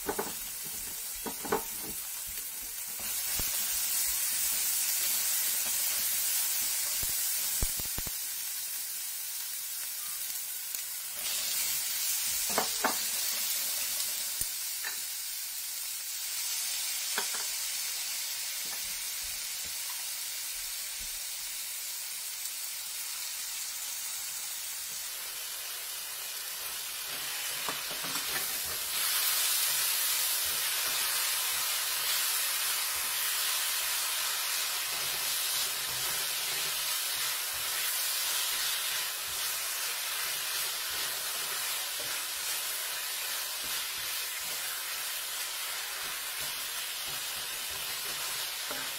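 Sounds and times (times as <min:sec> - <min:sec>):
food sizzling in hot oil: 0:00.0 - 0:48.9
spatula scraping a pan: 0:34.8 - 0:45.0.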